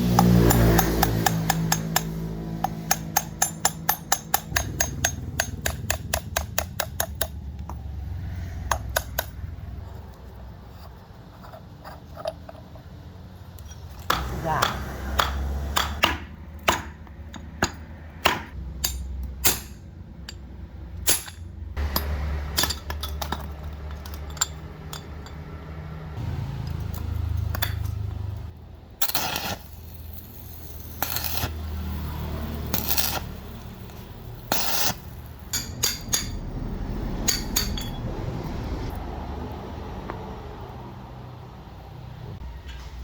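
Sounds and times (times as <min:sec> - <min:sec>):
metal tools clinking on work surface: 0:00.2 - 0:05.5, 0:21.1 - 0:25.7, 0:32.6 - 0:36.4, 0:37.3 - 0:38.0.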